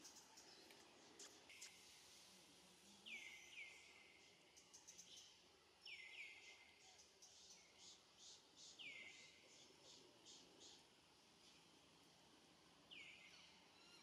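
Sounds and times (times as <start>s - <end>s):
bird chirping: 2.9s - 11.6s.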